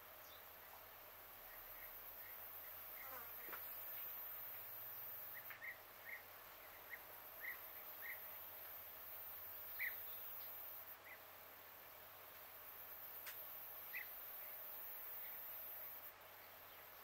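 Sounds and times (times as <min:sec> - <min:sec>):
faint outdoor hiss: 0:00.0 - 0:17.0
small bird chirping: 0:09.6 - 0:11.2.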